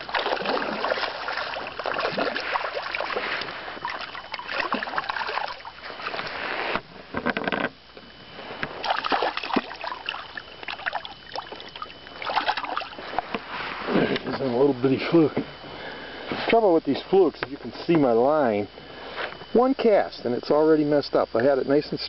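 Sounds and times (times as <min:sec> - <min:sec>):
water splashing against boat: 0:00.0 - 0:14.4.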